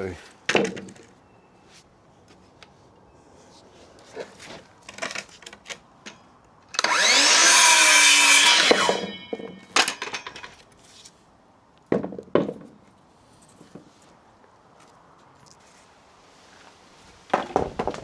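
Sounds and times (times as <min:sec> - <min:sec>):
power tool motor whine: 0:06.8 - 0:09.1.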